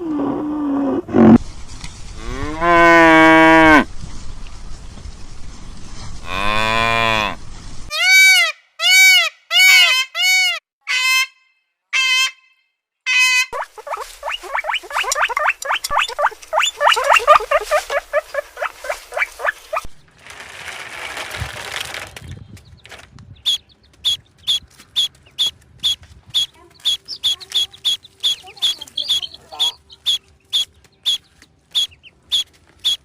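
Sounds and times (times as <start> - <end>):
young farm animals calling: 13.5 - 20.0, 23.4 - 33.0
chorus of chirping peeps: 13.6 - 20.0, 23.4 - 33.0.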